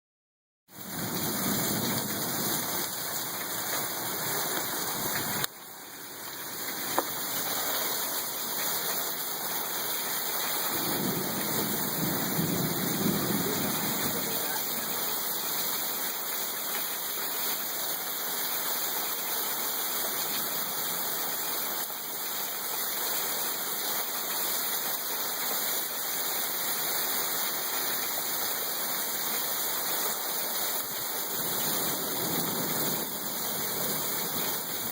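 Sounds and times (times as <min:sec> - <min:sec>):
heavy rain pouring: 0:00.7 - 0:34.9
low thunder rumble: 0:10.7 - 0:14.5.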